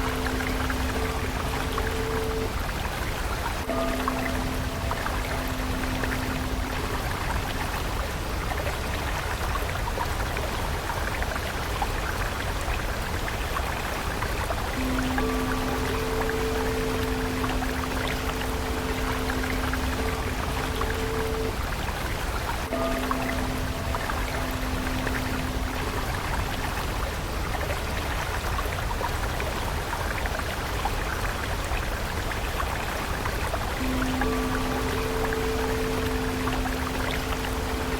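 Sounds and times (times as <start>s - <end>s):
held music tone: 0.0s - 2.6s, 3.6s - 7.9s, 14.8s - 21.7s, 22.6s - 27.0s, 33.8s - 37.9s
stream flowing: 0.0s - 37.9s
water splashing and trickling: 0.0s - 37.9s.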